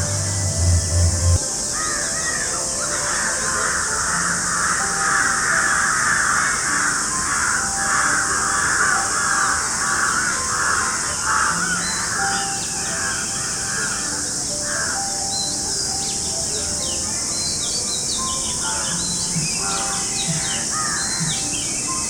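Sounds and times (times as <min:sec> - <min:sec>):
high-pitched hiss: 0:00.0 - 0:22.0
crows cawing: 0:01.7 - 0:15.6, 0:18.6 - 0:21.6.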